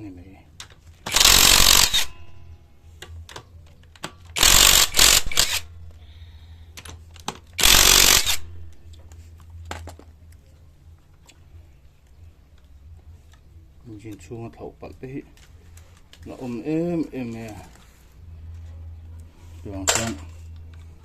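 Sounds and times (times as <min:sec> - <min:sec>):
impact wrench hammering: 0:01.1 - 0:02.3, 0:04.4 - 0:05.6, 0:07.6 - 0:08.5.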